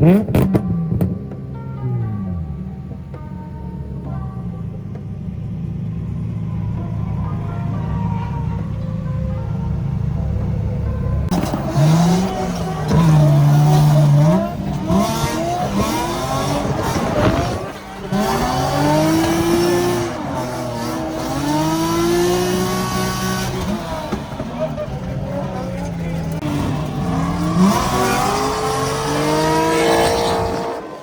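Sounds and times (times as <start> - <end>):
car engine revving: 0.0 - 31.0
tyres squealing: 6.6 - 31.0.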